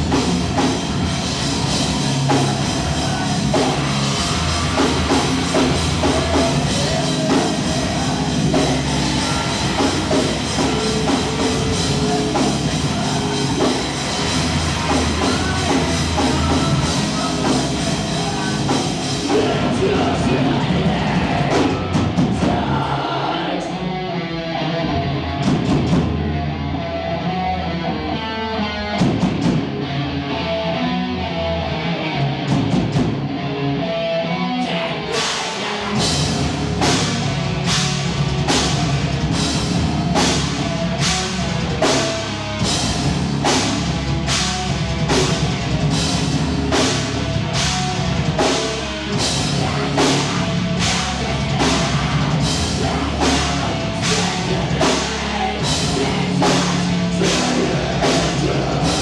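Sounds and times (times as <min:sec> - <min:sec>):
drum and cymbal hits: 0:00.0 - 0:22.7, 0:35.2 - 0:59.0
live rock band playing: 0:00.0 - 0:23.2, 0:28.6 - 0:59.0.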